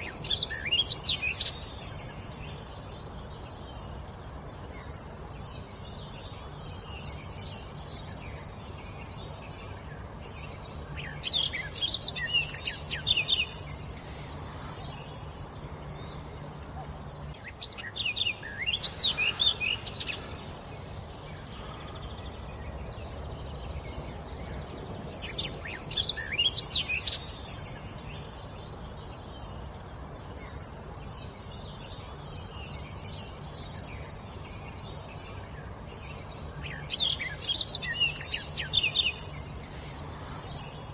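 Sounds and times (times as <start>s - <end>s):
low background hum: 0.0s - 40.9s
songbird chirping: 0.0s - 40.9s.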